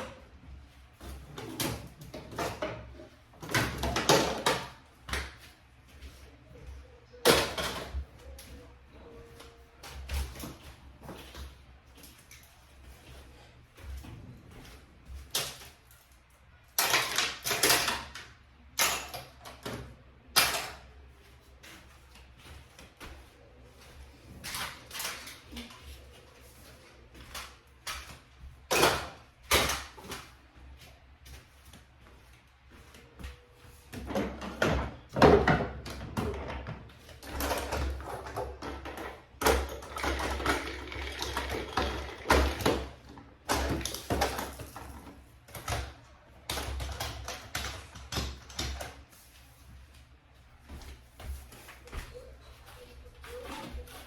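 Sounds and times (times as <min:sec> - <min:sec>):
household objects clattering: 0:33.9 - 0:49.0.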